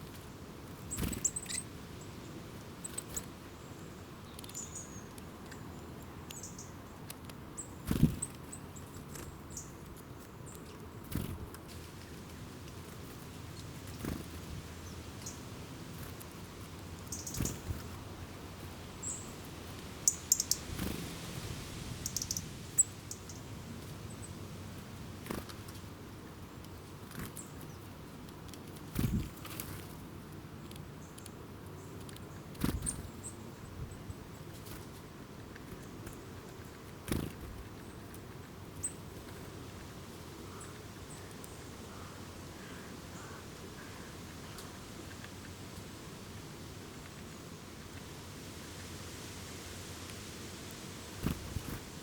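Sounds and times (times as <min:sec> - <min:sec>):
small birds chirping: 0:00.0 - 0:48.9
birds chirping: 0:00.9 - 0:01.7, 0:17.0 - 0:20.9, 0:22.0 - 0:24.4.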